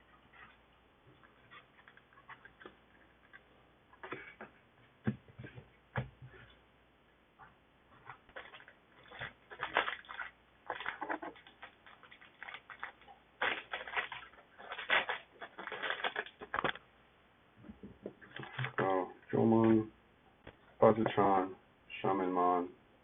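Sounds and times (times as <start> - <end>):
foil pack crinkling and tearing: 8.3 - 16.8.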